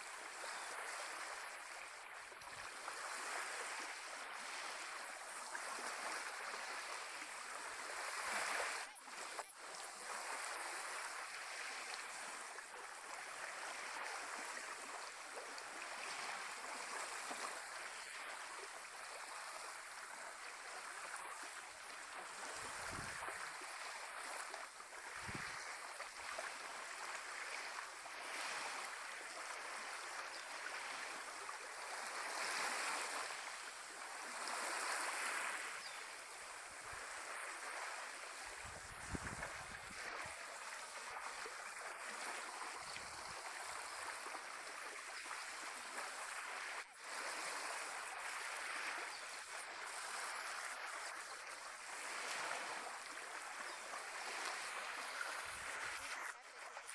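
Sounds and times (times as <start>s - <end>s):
small waves washing on shore: 0.0s - 56.9s.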